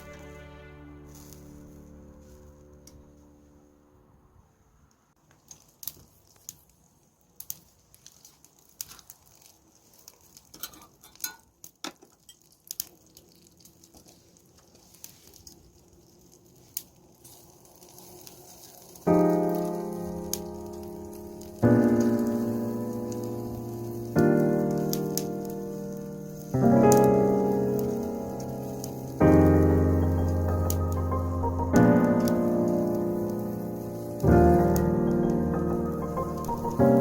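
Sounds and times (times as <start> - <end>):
background music: 0.0 - 3.9, 19.2 - 37.0
faint hiss: 0.0 - 11.0, 12.6 - 37.0
wood fire crackling: 0.0 - 37.0
fire pops: 5.2 - 37.0.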